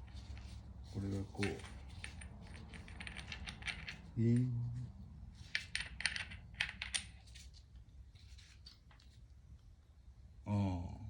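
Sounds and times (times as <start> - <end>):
small metal parts clinking: 0.0 - 4.5, 5.4 - 7.4
low vocal hum: 10.4 - 11.0.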